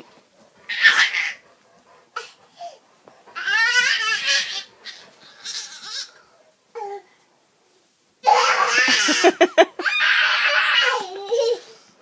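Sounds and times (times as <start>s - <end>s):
high-pitched squealing laugh: 8.4s - 10.8s
breathy laugh: 8.8s - 9.8s.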